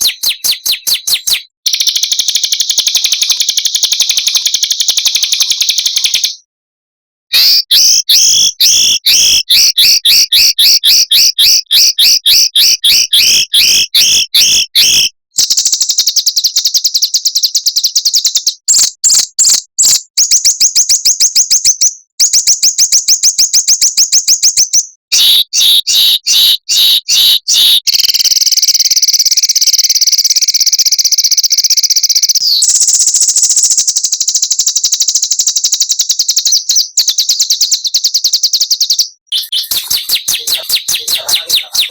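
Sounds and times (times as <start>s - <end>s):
songbird trilling: 0.0s - 6.4s, 37.6s - 41.9s.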